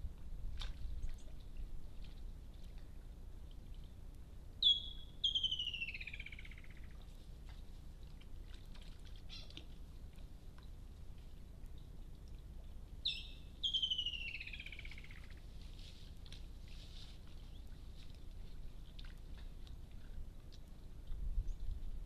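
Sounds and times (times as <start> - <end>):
low background hum: 0.0 - 22.0
bird whistling call: 4.6 - 6.8, 13.0 - 15.3
animals splashing in water: 6.5 - 12.6, 14.8 - 21.1.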